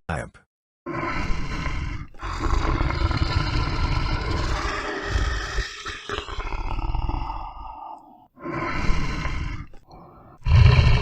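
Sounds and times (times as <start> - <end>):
lion roaring: 0.9 - 8.2, 10.4 - 11.0.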